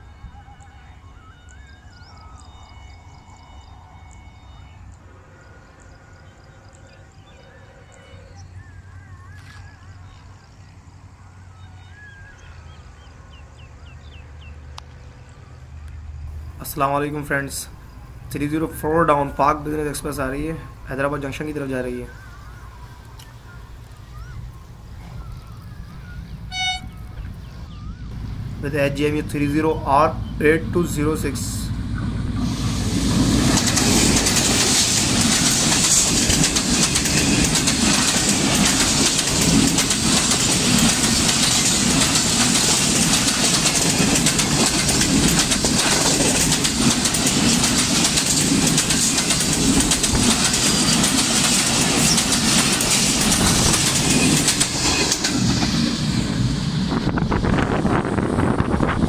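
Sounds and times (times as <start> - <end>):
high rushing train noise: 0.0 - 59.0
train wheels on rails clattering: 32.4 - 59.0.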